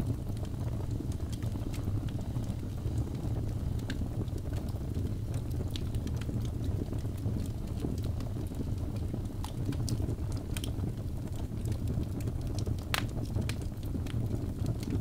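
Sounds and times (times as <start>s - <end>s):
wood fire crackling in a fireplace: 0.0s - 15.0s.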